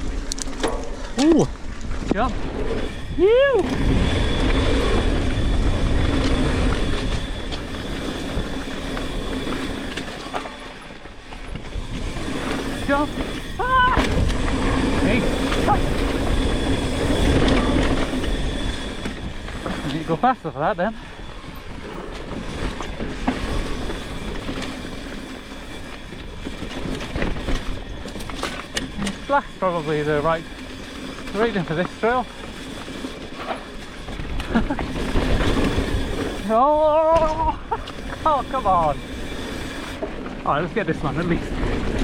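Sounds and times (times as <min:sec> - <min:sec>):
wind on camera: 0:00.0 - 0:10.0
bike rattling: 0:00.0 - 0:42.0
tyres rumbling on dirt: 0:00.0 - 0:42.0.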